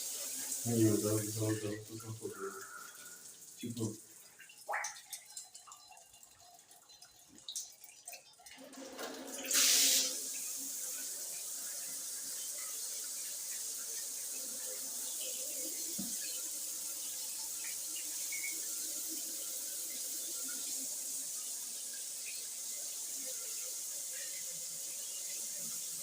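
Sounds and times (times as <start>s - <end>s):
shower head running: 0.0s - 1.8s, 9.4s - 11.5s.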